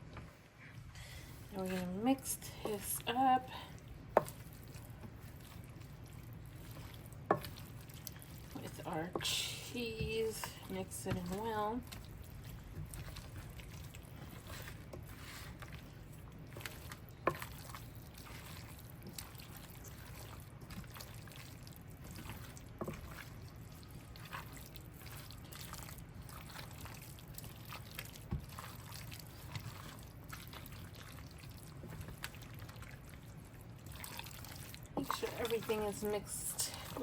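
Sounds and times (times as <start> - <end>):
wet squelching and scraping: 0.0 - 37.0.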